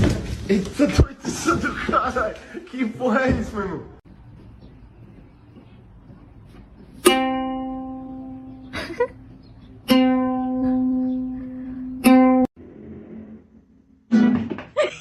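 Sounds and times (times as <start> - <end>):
plucked ukulele notes: 7.0 - 8.7, 9.8 - 12.5.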